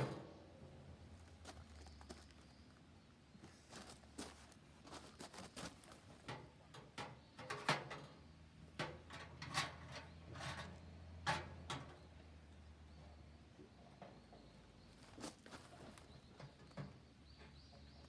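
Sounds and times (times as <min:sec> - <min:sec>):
sharp knocks and clatter: 0:00.0 - 0:00.4.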